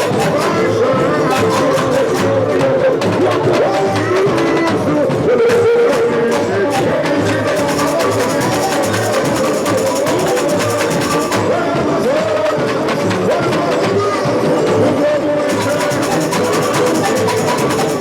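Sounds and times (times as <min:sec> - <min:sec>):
snare and tamborim strokes: 0:00.0 - 0:02.7, 0:05.5 - 0:11.6, 0:15.5 - 0:18.0
person singing melody: 0:00.0 - 0:18.0.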